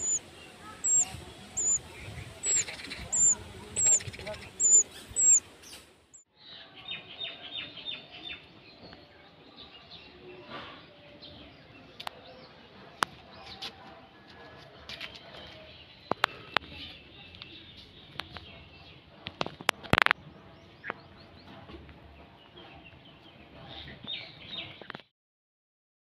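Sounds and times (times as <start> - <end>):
small bird chirping: 0.0 - 6.2.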